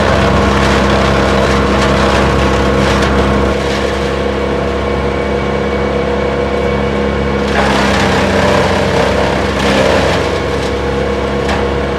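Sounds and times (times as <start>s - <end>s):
wood crunching and splintering: 0.0s - 5.0s, 7.4s - 11.9s
brush chipper running: 0.0s - 11.9s.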